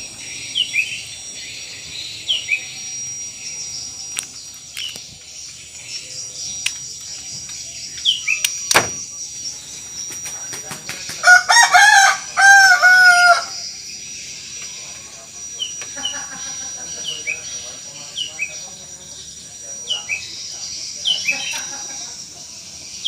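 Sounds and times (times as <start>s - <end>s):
high insect drone: 0.0s - 23.0s
bird chirps and clicks: 4.1s - 8.8s
rooster crowing: 11.2s - 13.7s.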